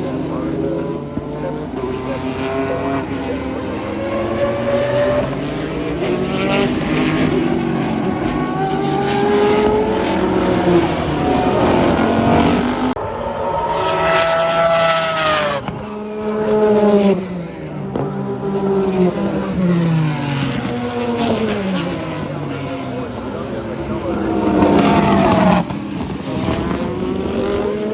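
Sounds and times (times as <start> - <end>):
race cars passing at speed: 0.0 - 27.9.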